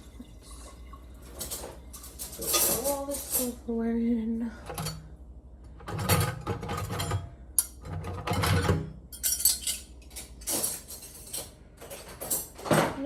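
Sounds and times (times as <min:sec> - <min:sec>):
cutlery and dishes clattering: 0:01.4 - 0:03.6, 0:05.8 - 0:13.0.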